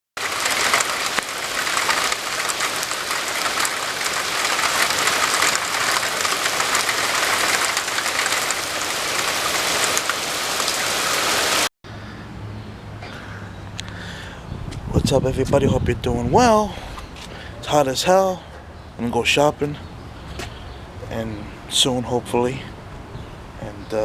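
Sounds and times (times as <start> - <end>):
heavy rain falling: 0.2 - 11.7.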